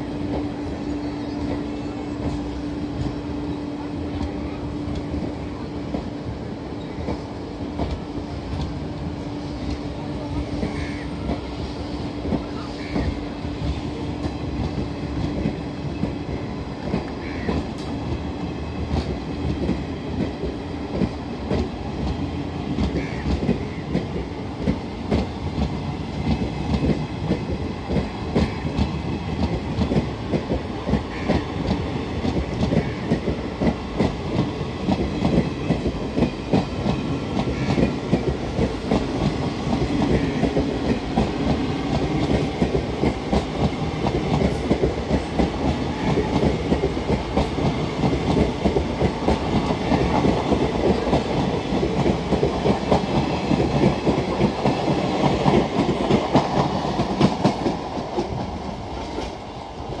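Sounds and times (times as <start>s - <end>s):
train wheels clattering: 12.2s - 60.0s.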